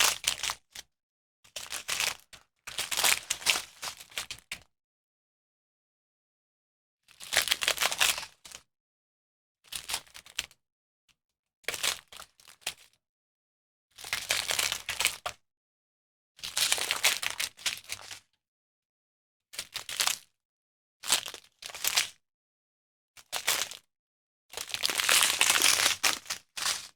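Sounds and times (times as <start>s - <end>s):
small plastic bags handled: 24.8s - 26.9s.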